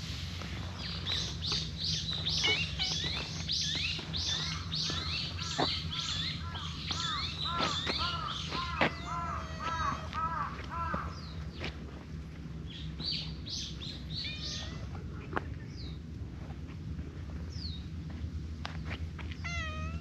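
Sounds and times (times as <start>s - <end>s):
birds chirping: 0.0s - 16.1s, 17.2s - 20.0s
lower arched bird notes: 0.5s - 11.6s.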